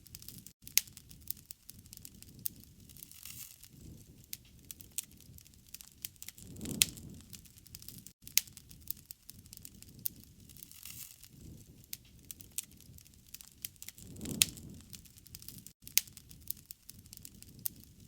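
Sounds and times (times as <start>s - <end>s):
low rumble of flame: 0.0s - 18.0s
wood fire crackling: 0.0s - 18.0s.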